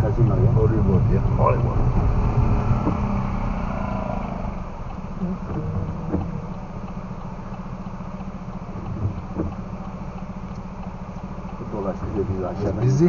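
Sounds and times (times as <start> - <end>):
car engine and tyres rumble: 0.0 - 13.0
light knocks: 8.8 - 9.7.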